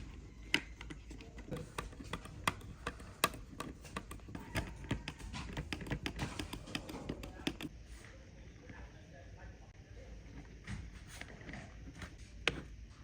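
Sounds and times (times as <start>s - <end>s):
quick irregular taps and clicks: 0.0s - 7.7s.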